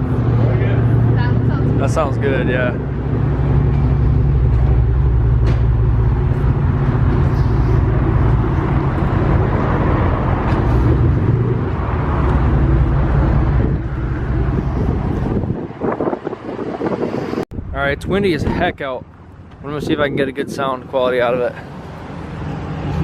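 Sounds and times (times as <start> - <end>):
car engine idling: 0.0 - 15.6.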